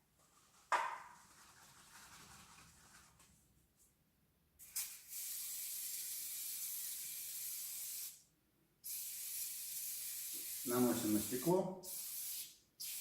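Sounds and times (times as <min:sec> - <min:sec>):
aerosol spray hissing: 0:04.6 - 0:08.2, 0:08.9 - 0:13.0.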